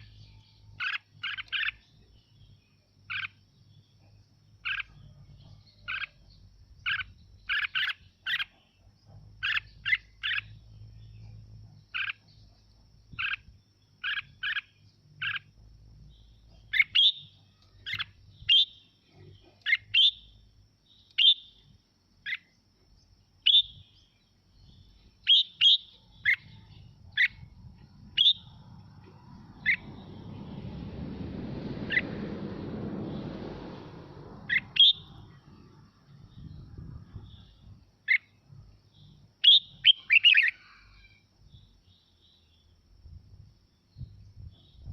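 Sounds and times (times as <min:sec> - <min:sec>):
bird whistling notes: 0:16.7 - 0:18.8, 0:28.1 - 0:28.6, 0:29.6 - 0:30.4, 0:31.9 - 0:32.2, 0:34.4 - 0:35.4, 0:39.4 - 0:40.8
rushing noise: 0:28.0 - 0:35.9.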